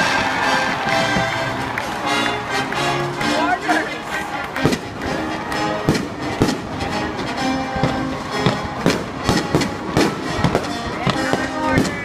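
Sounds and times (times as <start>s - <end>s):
music playing: 0.0s - 12.0s
fireworks bangs: 4.4s - 12.0s.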